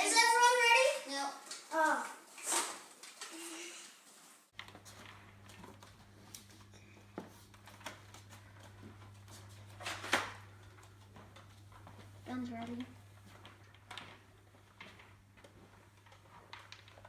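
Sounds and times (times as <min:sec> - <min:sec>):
faint clicks and knocks: 0:04.5 - 0:17.0.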